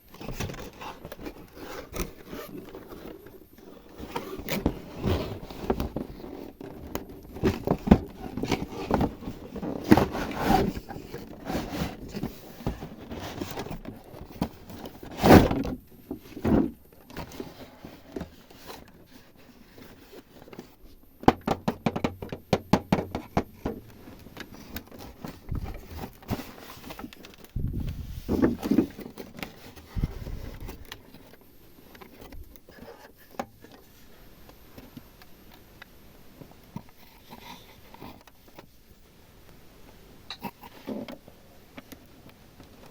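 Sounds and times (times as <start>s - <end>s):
knock on surface: 21.3s - 23.5s.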